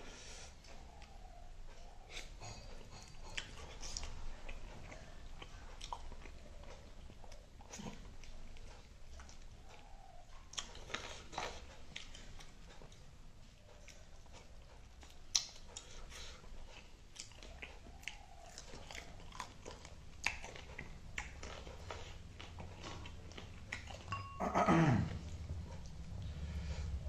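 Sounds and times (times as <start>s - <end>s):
person chewing with wet smacks: 0.6s - 24.4s, 25.1s - 27.0s
crunching food: 3.2s - 24.1s.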